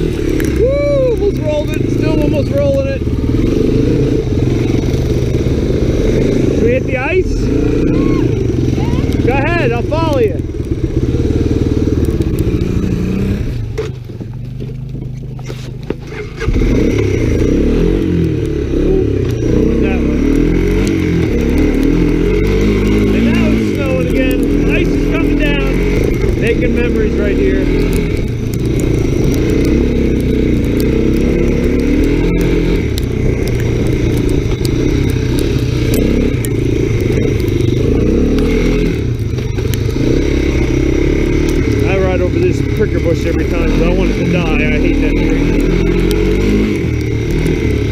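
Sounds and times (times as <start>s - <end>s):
motorcycle engine revving: 0.0s - 47.9s
clicks and clatter: 11.9s - 47.9s.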